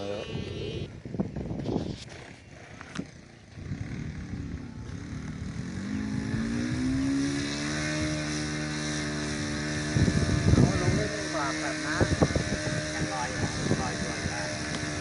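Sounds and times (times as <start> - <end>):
small motor whining: 0.0 - 15.0.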